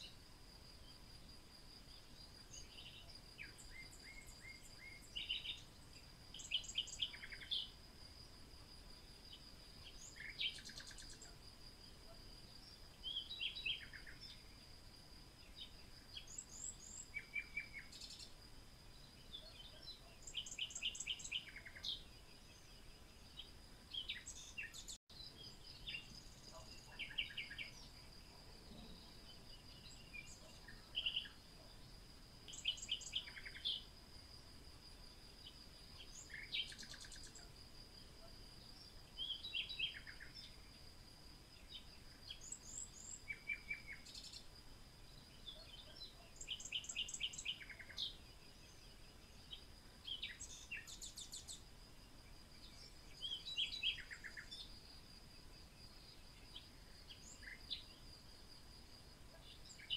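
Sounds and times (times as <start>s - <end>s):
birds chirping and trilling: 1.9s - 7.8s, 12.5s - 14.6s, 19.0s - 33.9s, 45.4s - 51.6s.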